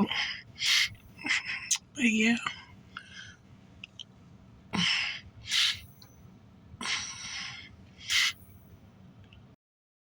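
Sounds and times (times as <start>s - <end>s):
person breathing: 0.0s - 1.8s, 2.5s - 3.5s, 4.7s - 6.1s, 6.8s - 8.6s
breathy sighs: 4.7s - 5.9s, 6.8s - 8.4s.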